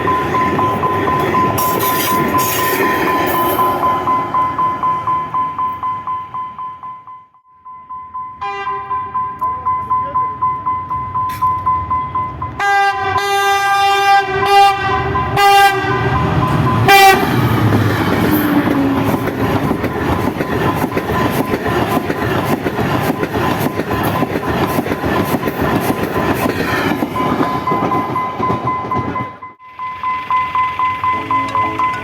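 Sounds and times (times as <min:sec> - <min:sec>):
train rushing past: 0:00.0 - 0:06.6, 0:10.8 - 0:32.0
locomotive air horn blasts: 0:08.4 - 0:09.0, 0:12.6 - 0:16.2, 0:16.9 - 0:17.4.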